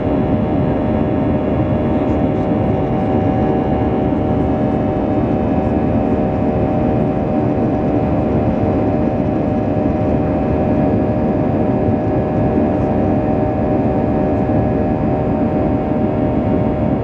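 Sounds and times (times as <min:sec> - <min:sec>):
jet engine drone: 0:00.0 - 0:17.0.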